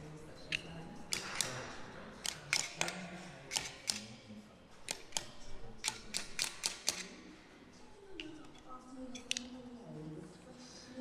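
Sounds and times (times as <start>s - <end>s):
pliers clicking on metal: 0.5s - 4.2s, 4.8s - 7.2s, 8.2s - 9.6s.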